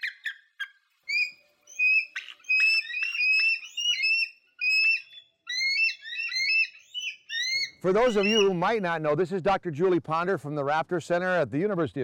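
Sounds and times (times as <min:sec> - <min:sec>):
bird calling: 0:00.0 - 0:08.7.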